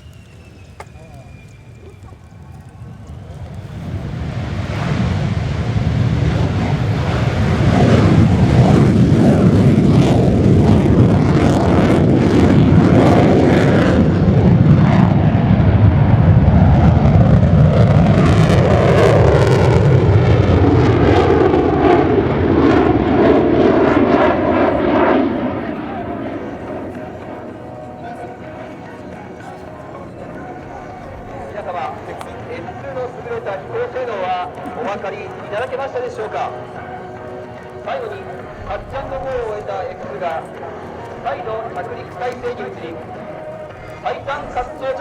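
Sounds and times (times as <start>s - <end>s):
jet engine flying by: 0.0s - 45.0s.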